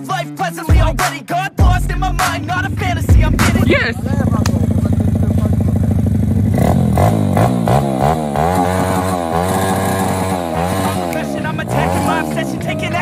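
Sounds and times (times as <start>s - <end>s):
motorbike engine idling and revving: 1.6s - 13.0s.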